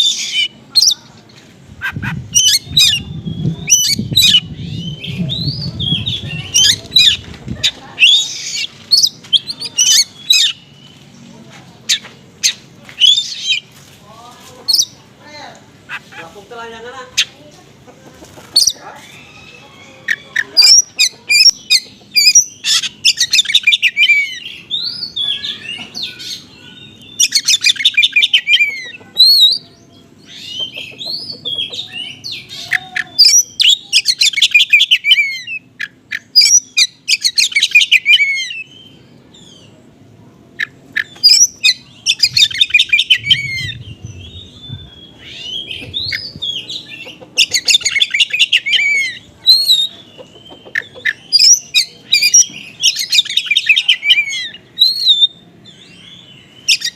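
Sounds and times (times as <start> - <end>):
bird singing chattering song: 0.0 - 13.7, 14.6 - 15.0, 15.8 - 56.9.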